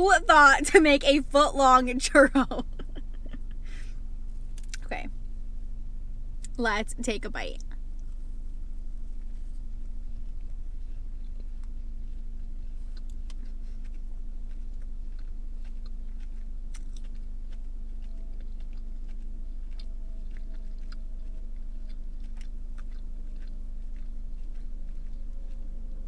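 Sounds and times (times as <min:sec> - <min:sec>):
person chewing: 0:03.1 - 0:04.9, 0:09.2 - 0:26.0.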